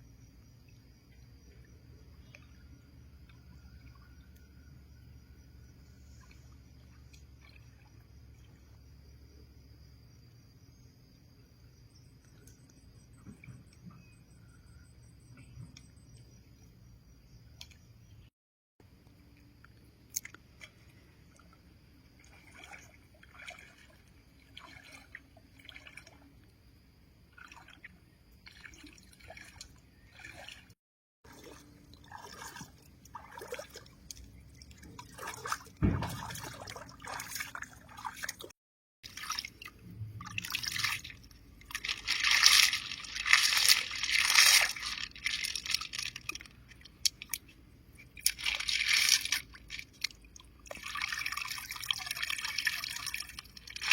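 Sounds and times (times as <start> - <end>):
lake water sloshing and splashing: 0.5 - 8.9, 20.1 - 26.6, 27.2 - 53.9.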